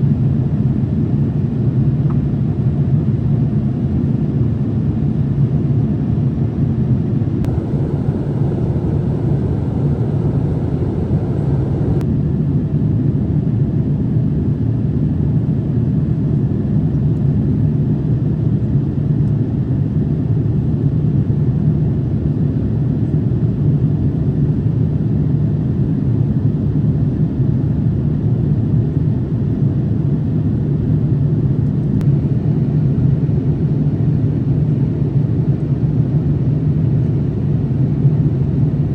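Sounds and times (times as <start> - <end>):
airplane cabin rumble: 7.4 - 12.0
bright hiss: 7.5 - 12.0.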